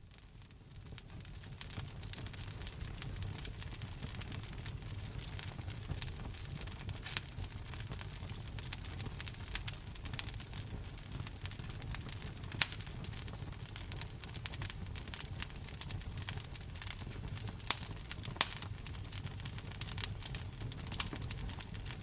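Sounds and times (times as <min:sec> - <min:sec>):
wood fire crackling: 0:00.0 - 0:22.0
loud fire pops: 0:00.9 - 0:22.0.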